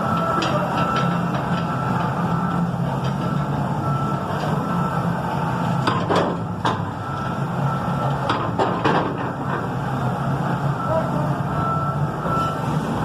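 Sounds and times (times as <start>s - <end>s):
backup alarm beeps: 0.0s - 5.8s, 7.0s - 8.3s, 10.8s - 12.8s
forklift engine running: 0.0s - 13.0s.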